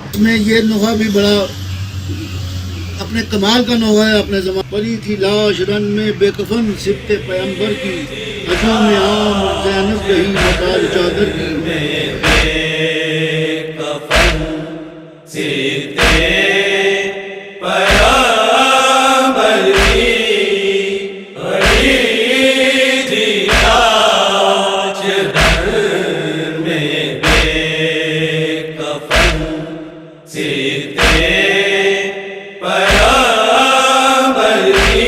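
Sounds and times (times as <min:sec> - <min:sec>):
low thump keeping time: 0:04.2 - 0:12.7
group chanting a mourning lament: 0:05.5 - 0:35.0.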